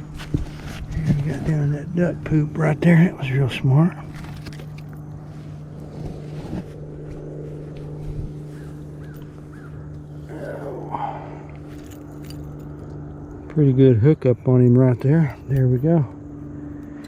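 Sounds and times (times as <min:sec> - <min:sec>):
low engine hum: 0:00.0 - 0:17.0
faint voice: 0:10.3 - 0:11.4.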